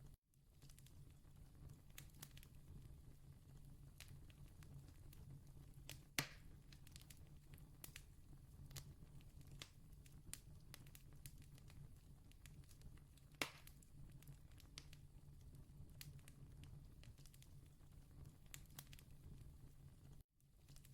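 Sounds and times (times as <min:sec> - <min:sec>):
fire popping: 0:00.5 - 0:20.9
campfire crackling: 0:00.6 - 0:20.9.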